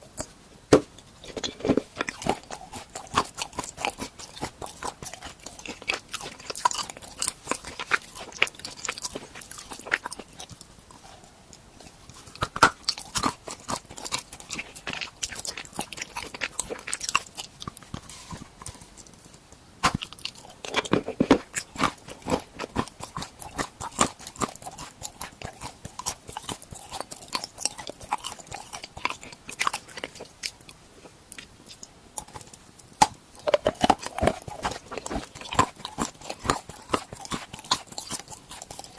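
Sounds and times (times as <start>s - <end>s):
crunching and chewing snacks: 0.0s - 38.9s.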